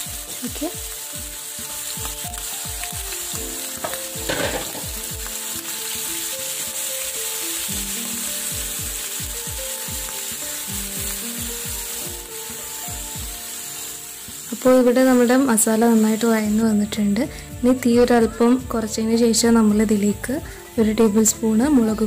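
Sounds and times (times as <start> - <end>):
spatula stirring and scraping pan: 0.0 - 16.6
background music with steady beat: 0.0 - 22.0
mussels sizzling in oil: 0.0 - 22.0.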